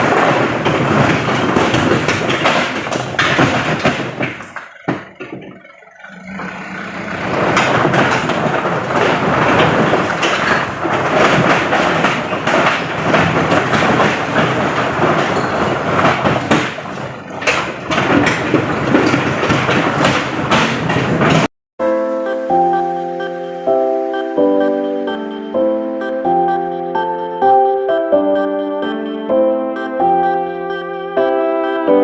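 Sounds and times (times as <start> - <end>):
stone rumbling and clattering: 0.0 - 21.5
diesel engine humming: 4.3 - 11.0.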